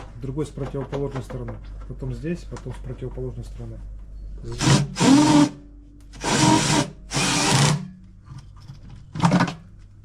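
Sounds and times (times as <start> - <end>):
power drill driving screws: 4.6 - 5.6, 6.2 - 7.8.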